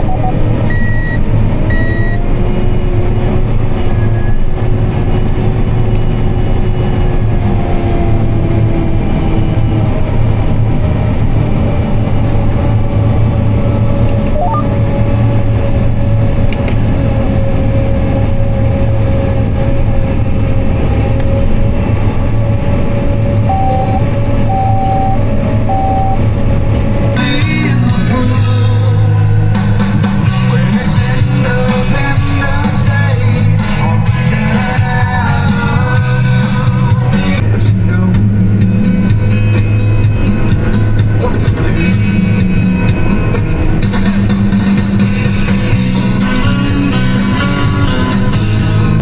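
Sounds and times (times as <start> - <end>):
tractor engine droning: 0.0 - 49.0
faint steady whine: 23.4 - 26.3.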